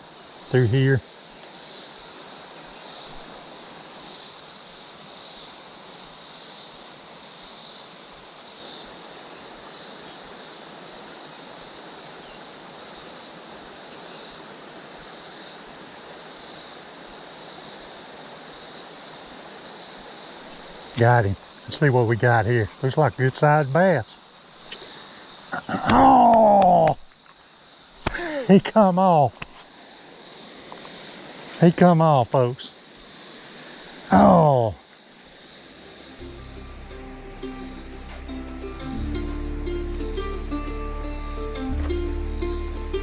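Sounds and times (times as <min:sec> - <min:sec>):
creek water running over rocks: 0:00.0 - 0:41.7
high steady buzz: 0:35.6 - 0:43.0.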